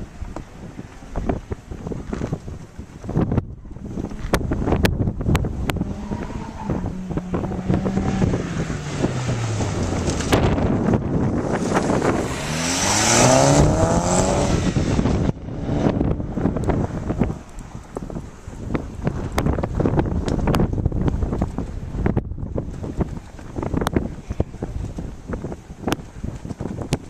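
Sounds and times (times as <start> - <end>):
wind buffeting microphone: 0.0 - 27.0
sports car engines passing: 4.6 - 19.4
car accelerating by: 5.6 - 17.4.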